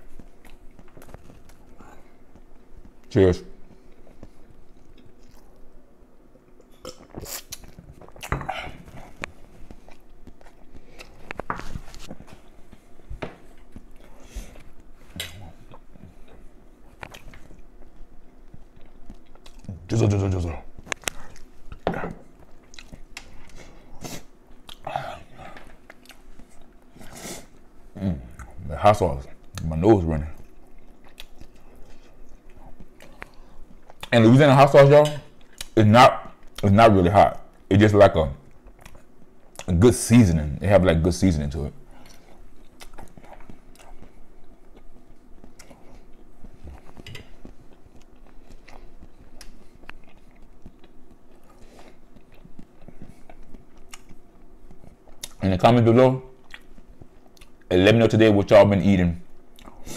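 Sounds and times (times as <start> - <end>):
person chewing food: 0.0 - 19.9, 20.6 - 28.6, 30.3 - 34.1, 35.3 - 36.6, 38.4 - 39.7, 41.8 - 55.4, 56.3 - 57.7, 59.3 - 59.9
mouth clicks and smacks: 52.2 - 55.4.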